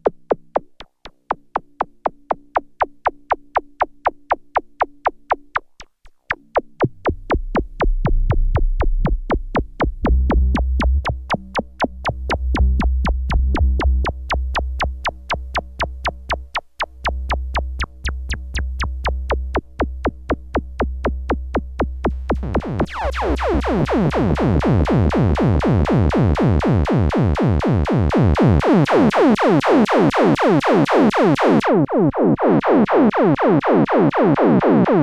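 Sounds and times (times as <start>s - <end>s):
clicking electronic percussion: 0.0s - 35.0s
deep synth bass: 6.3s - 29.3s
synth drone: 21.8s - 26.9s.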